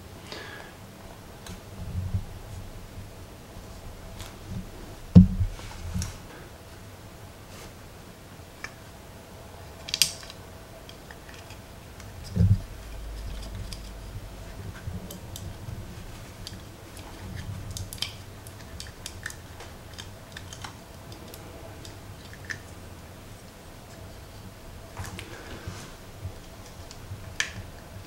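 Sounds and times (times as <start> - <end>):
dull thump: 5.1 - 5.6.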